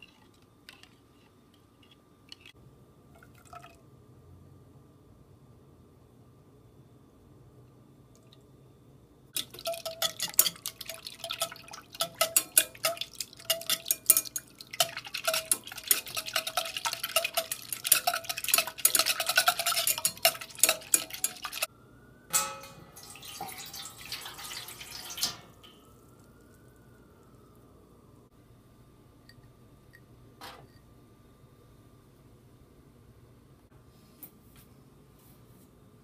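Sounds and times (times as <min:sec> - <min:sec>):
water pouring into a pan: 0:09.4 - 0:21.7, 0:23.0 - 0:26.3
whisk clicking against metal pot: 0:09.4 - 0:21.7.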